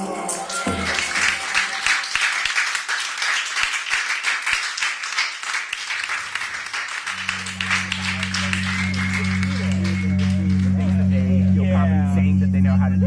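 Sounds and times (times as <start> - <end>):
group applause: 0.0 - 11.3
steady low hum: 7.1 - 13.0.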